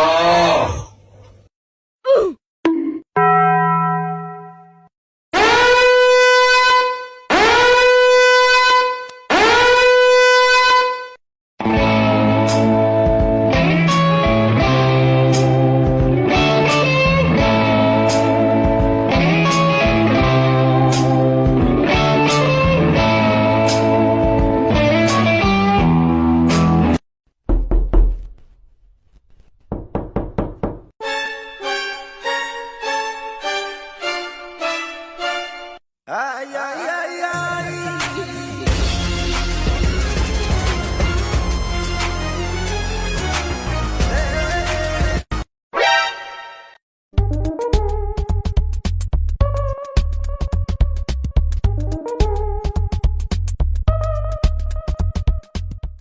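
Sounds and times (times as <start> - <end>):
horn blasts: 5.4 - 11.2
guitar music: 11.6 - 27.0
loud knocks: 27.4 - 28.4, 29.7 - 30.9
violin music: 31.0 - 35.8.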